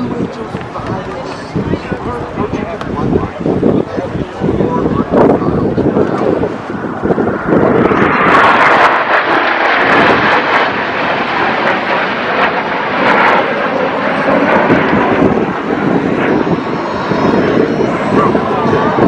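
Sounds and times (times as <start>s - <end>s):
aircraft flying past: 0.0s - 19.0s
sharp crackles: 7.0s - 13.5s.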